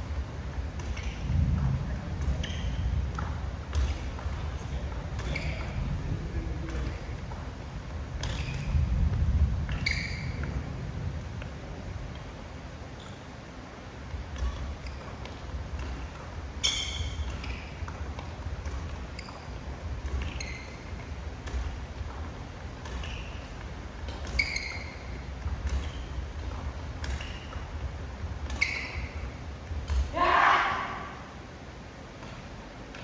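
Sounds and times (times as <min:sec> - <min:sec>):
badminton rackets striking shuttlecocks: 0:14.3 - 0:31.1
high squeaks: 0:24.2 - 0:26.2, 0:28.5 - 0:29.3.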